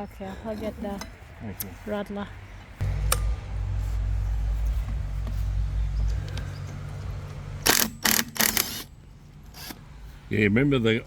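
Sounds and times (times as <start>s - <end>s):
low hum: 2.8s - 7.7s
impact wrench bursts: 7.6s - 8.9s.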